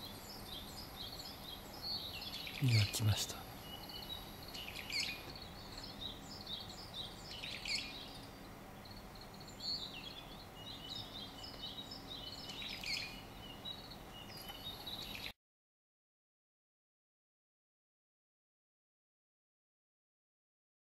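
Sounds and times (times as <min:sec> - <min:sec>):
small songbirds chirping: 0:00.0 - 0:15.4.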